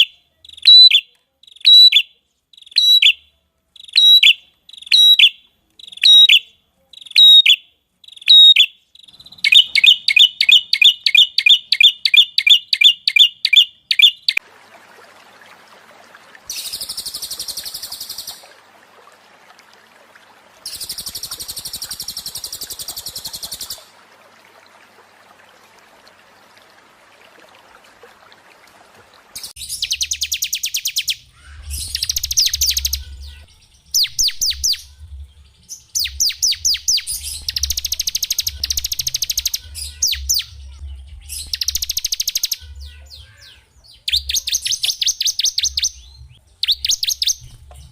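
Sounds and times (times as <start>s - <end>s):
songbirds chirping and trilling: 0.0s - 14.4s, 19.9s - 47.9s
buzzy hissing bird calls: 20.7s - 23.9s
faint low hum: 34.5s - 35.9s.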